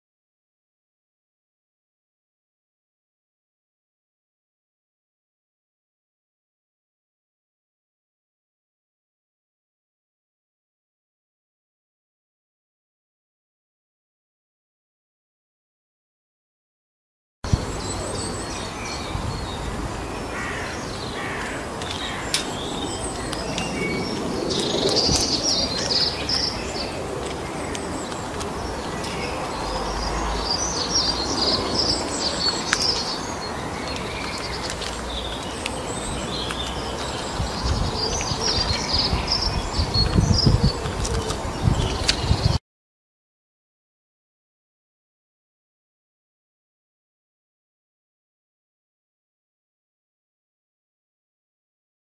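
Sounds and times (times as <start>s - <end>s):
outdoor background hiss: 17.5s - 24.2s
small birds chirping: 17.5s - 42.6s.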